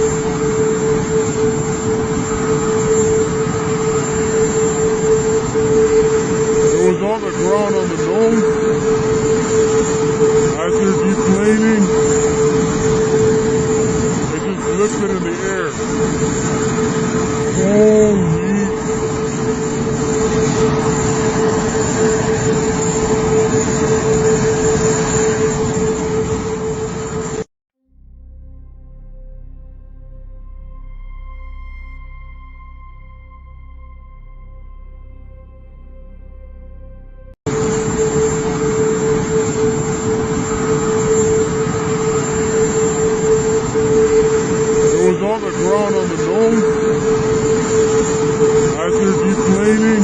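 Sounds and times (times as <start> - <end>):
jet engine roaring: 0.0 - 27.5, 37.5 - 50.0.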